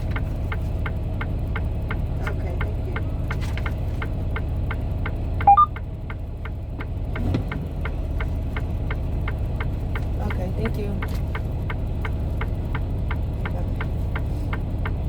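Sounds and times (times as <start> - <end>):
truck engine idling: 0.0 - 15.0
regular ticking: 0.1 - 15.0
short electronic beeps: 5.4 - 5.7.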